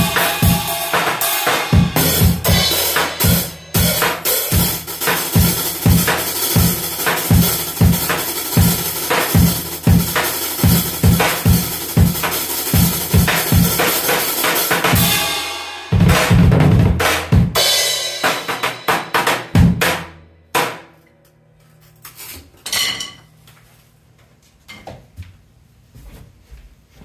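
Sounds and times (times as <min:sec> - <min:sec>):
drum kit played hard: 0:00.0 - 0:20.9.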